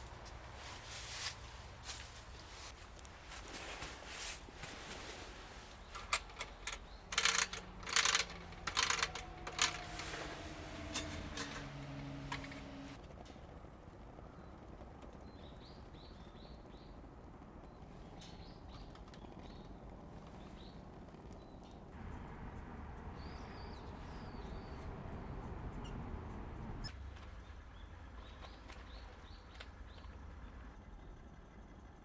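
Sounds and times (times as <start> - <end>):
small birds chirping: 4.9 - 13.0, 14.2 - 30.7
low background rumble: 22.0 - 28.1.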